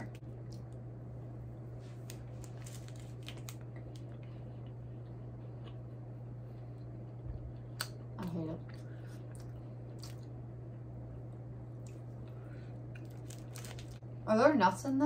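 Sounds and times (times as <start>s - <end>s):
low electrical hum: 0.0s - 15.0s
person chewing: 2.1s - 11.1s.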